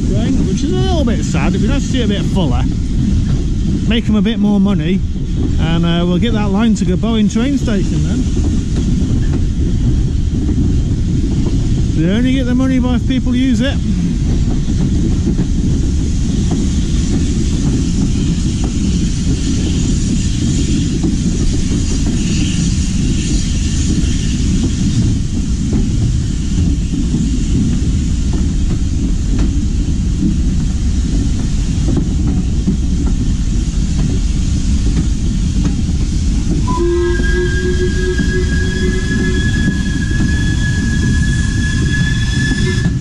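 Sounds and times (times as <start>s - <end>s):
train wheels rumbling on rail: 0.0s - 43.0s
steady pitched tone: 36.6s - 42.9s.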